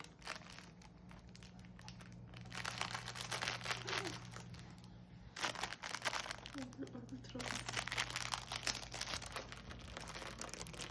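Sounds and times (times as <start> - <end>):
potato chips crunching: 0.0 - 10.9.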